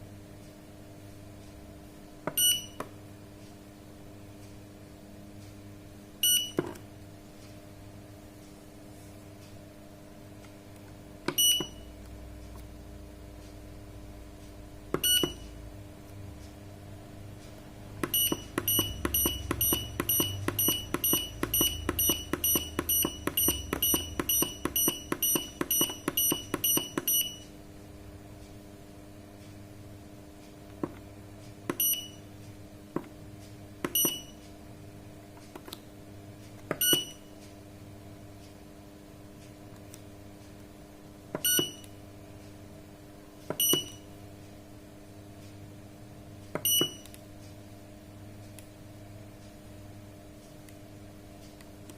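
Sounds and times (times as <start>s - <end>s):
keypad beeping: 2.3s - 2.8s, 6.2s - 6.7s, 11.3s - 11.9s, 15.0s - 15.5s, 18.0s - 27.5s, 31.7s - 32.2s, 33.9s - 34.4s, 36.7s - 37.3s, 41.4s - 41.9s, 43.5s - 44.0s, 46.6s - 47.1s.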